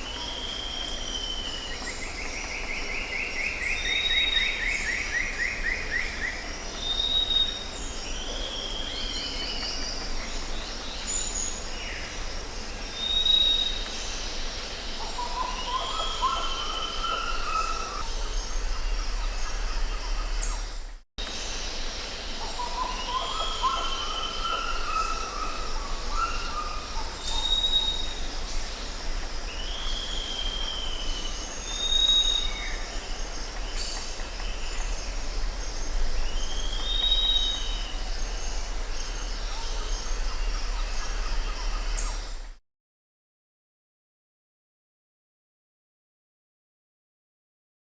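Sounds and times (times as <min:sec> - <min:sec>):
high insect drone: 0:00.0 - 0:42.5
birds calling and whistling: 0:12.9 - 0:42.6.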